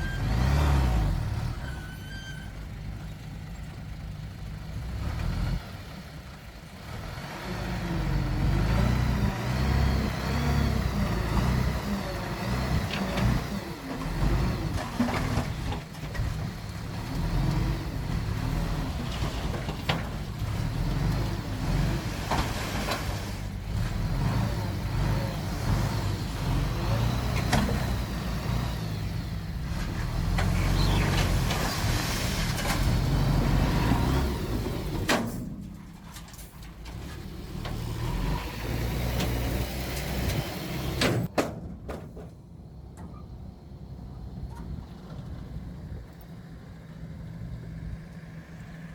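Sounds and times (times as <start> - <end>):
heavy diesel engine revving: 0.0 - 1.6, 6.8 - 15.4, 20.2 - 35.1, 37.0 - 41.3.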